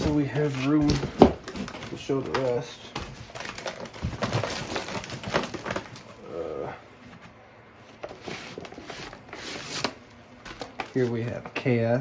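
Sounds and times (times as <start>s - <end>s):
cardboard boxes knocking on table: 0.0s - 2.4s.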